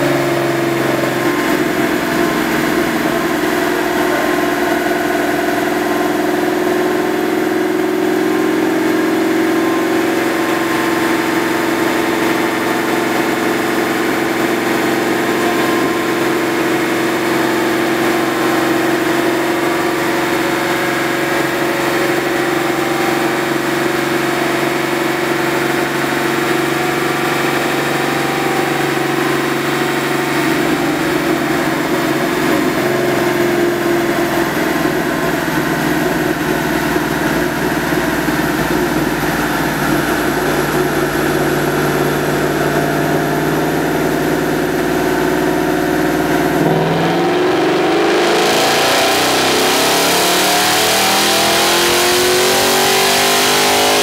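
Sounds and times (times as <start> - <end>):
car engine revving on dyno: 0.0 - 54.0.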